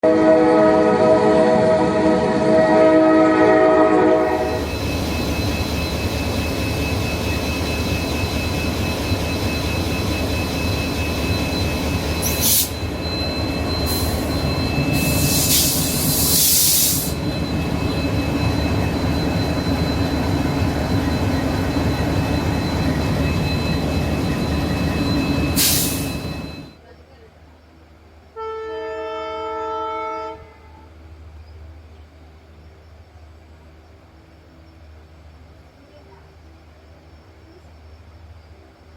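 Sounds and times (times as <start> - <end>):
train horn: 0.0 - 4.7, 28.4 - 31.0
train rumbling on track: 0.0 - 38.9.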